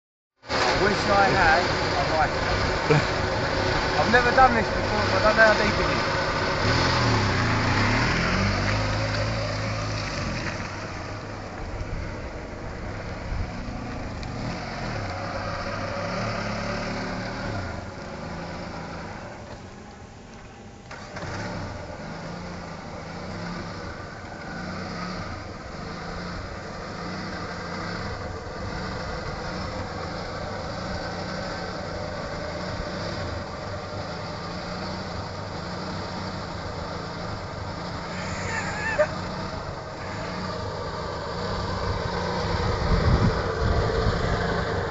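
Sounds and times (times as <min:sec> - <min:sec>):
car engine revving: 0:00.4 - 0:44.9.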